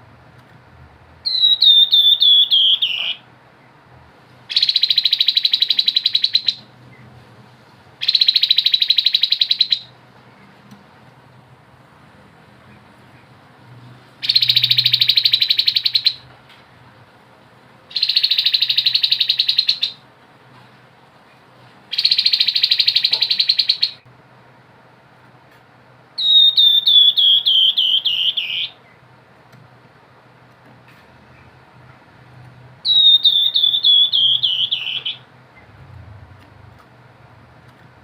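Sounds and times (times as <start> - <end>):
bird singing rapid trills: 1.2 - 3.2, 4.5 - 7.0, 8.0 - 10.0, 14.2 - 16.2, 17.9 - 20.0, 21.9 - 24.0, 26.2 - 29.0, 32.8 - 35.7.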